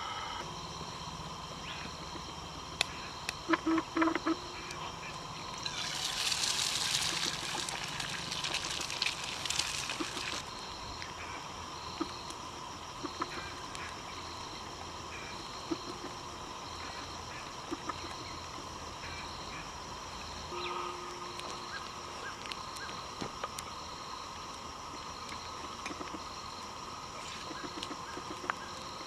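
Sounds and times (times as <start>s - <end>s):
hissing crackling rush: 5.3s - 10.5s
pulsing insect buzz: 5.4s - 10.5s.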